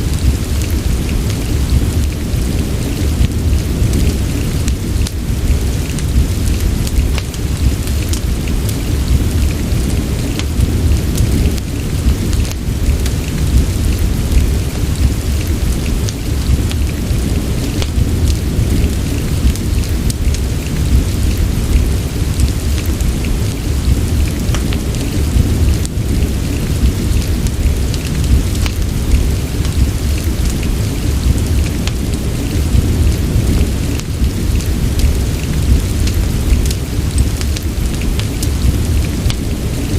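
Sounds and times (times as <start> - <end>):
crackling fireplace: 0.0 - 39.9
deep rumble: 0.0 - 39.9
rain patter: 0.0 - 39.9.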